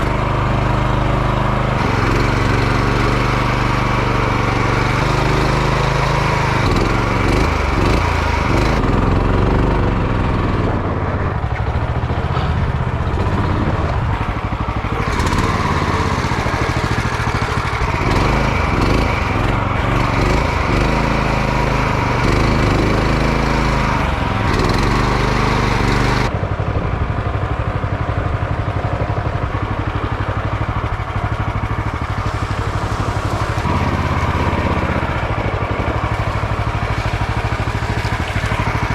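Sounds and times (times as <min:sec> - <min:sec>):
outboard motor running: 0:00.0 - 0:38.9.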